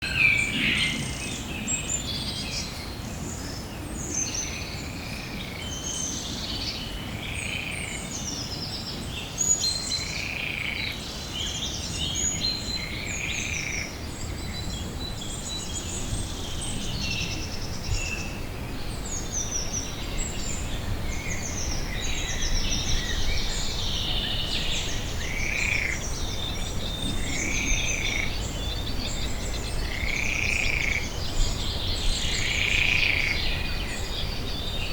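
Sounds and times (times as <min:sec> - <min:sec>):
small birds chirping: 0:09.2 - 0:34.9.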